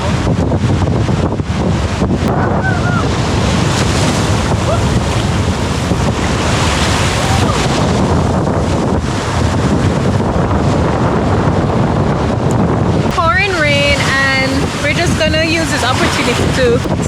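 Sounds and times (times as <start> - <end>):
breaking surf: 0.0 - 17.0
wind buffeting microphone: 0.0 - 17.0
heavy rain pouring: 2.2 - 10.2.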